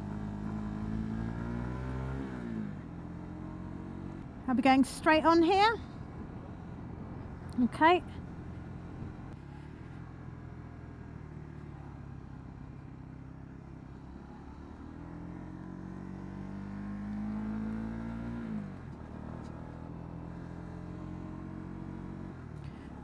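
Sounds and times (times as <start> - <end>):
motorcycle engine revving: 0.0 - 4.3, 13.2 - 23.0.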